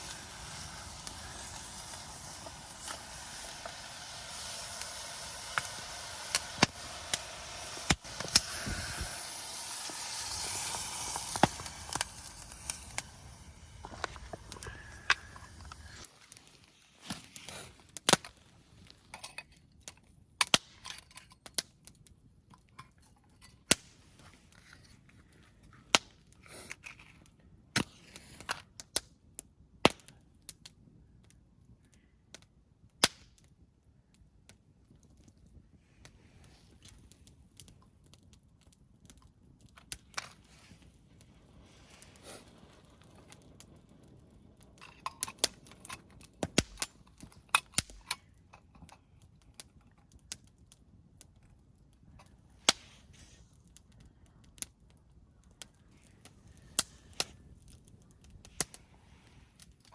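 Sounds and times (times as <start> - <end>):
wood fire crackling: 0.0 - 19.2, 34.2 - 59.9.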